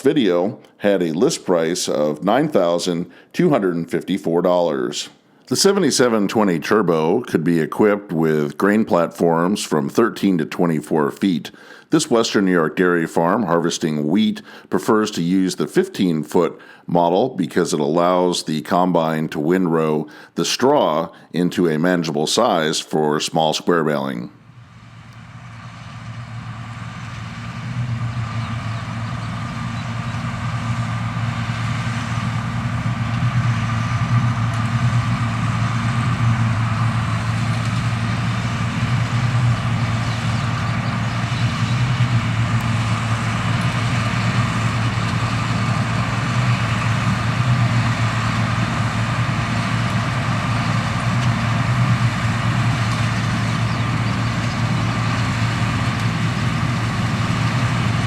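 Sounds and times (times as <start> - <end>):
combine diesel engine running: 5.0 - 16.9, 23.8 - 58.0.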